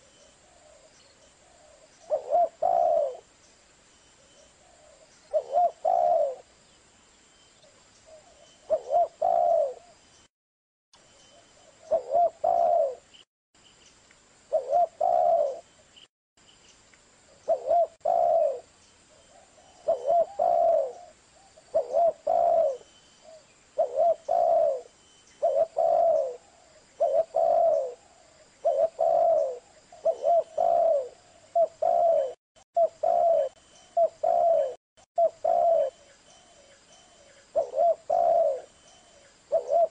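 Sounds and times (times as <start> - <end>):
dove cooing: 0.0 - 3.3, 4.6 - 6.5, 8.1 - 10.0, 11.7 - 13.1, 14.5 - 15.7, 17.5 - 18.7, 19.3 - 39.9.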